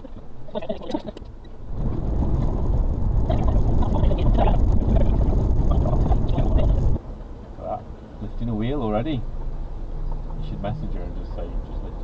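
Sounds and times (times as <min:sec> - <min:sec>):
truck engine low rumble: 0:01.5 - 0:07.0.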